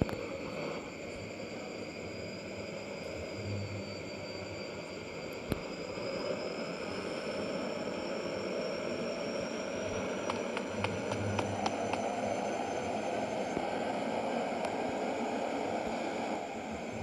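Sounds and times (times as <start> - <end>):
high whine rising in pitch: 0.0 - 17.0
truck engine and road noise: 9.6 - 12.7.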